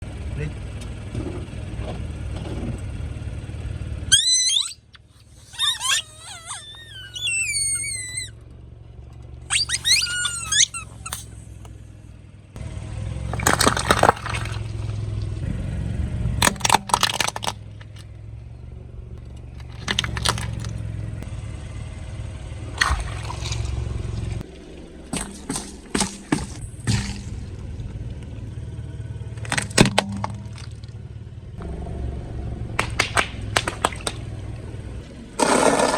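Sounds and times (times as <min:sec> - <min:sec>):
car engine hum: 0:00.0 - 0:35.9
squeaky sliding tones: 0:04.1 - 0:08.4, 0:09.5 - 0:11.7
tyre crushing objects: 0:25.1 - 0:27.2.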